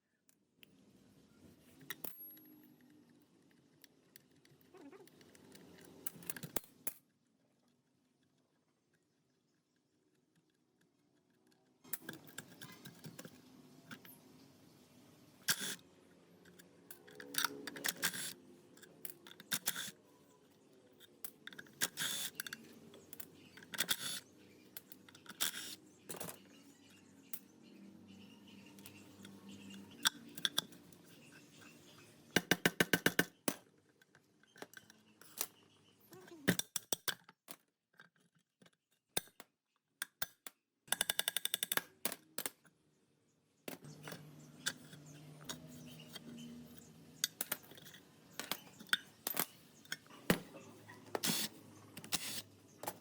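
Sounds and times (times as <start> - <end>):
metal tools clinking and knocking: 44.0 - 51.4.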